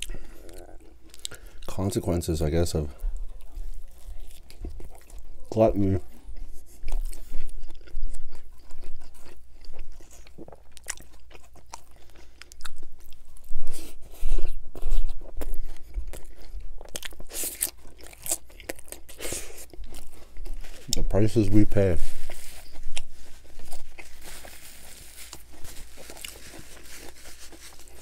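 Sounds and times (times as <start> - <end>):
crunching chips: 6.8 - 28.0.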